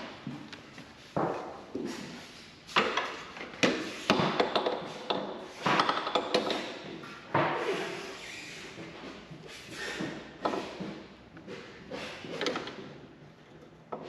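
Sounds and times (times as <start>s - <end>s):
metal clanks and taps: 2.8s - 7.1s.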